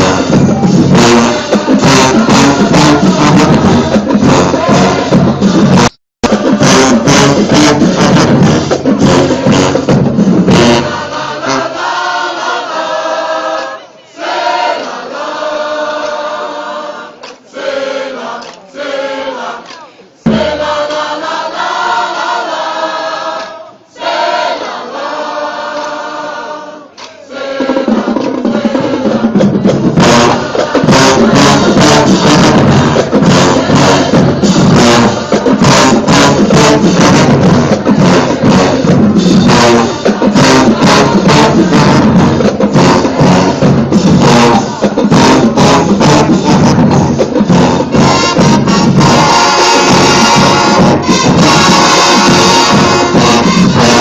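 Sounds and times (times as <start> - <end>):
drums: 0.0 - 12.4, 20.2 - 22.4, 26.3 - 54.0
marching band playing: 0.0 - 13.6, 17.6 - 54.0
many voices singing together: 0.0 - 54.0.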